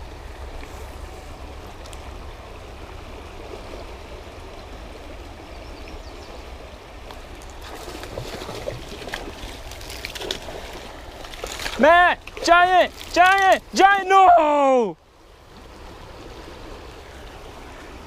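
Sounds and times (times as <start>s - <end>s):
river water flowing: 0.0s - 18.0s
light clicks and rustles: 8.9s - 13.6s.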